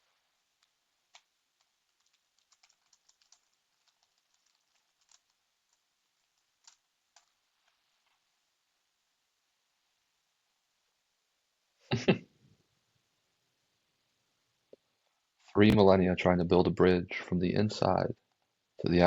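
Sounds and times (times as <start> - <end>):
faint typing on keyboard: 0.0 - 8.5.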